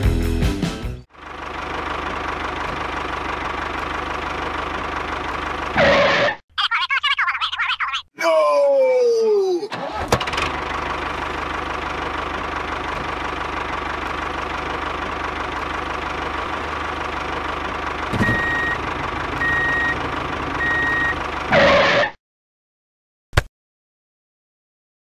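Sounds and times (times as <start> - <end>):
toy tractor engine idling: 1.1 - 6.2, 9.7 - 21.6
reversing beeps: 18.2 - 18.8, 19.4 - 20.0, 20.6 - 21.2.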